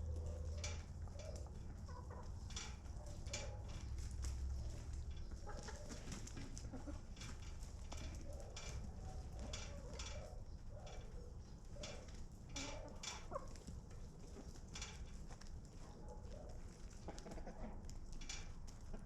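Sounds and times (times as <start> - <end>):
low steady rumble: 0.0 - 5.6
chickens clucking: 0.0 - 18.0, 18.8 - 19.0.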